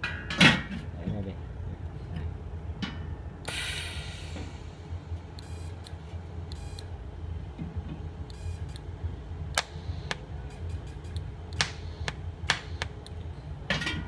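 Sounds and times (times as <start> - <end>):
welding arc snaps: 3.4 - 4.4, 9.5 - 13.2
welder humming: 3.4 - 13.6.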